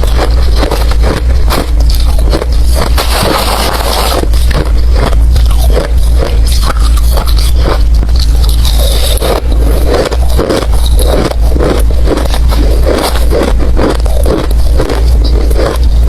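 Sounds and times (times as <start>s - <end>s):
ice being chewed: 0.0s - 16.0s
steady low rumble: 0.0s - 16.0s.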